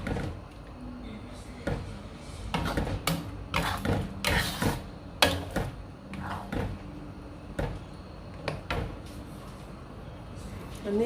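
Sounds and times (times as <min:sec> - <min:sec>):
spatula scraping a pan: 0:02.5 - 0:06.7.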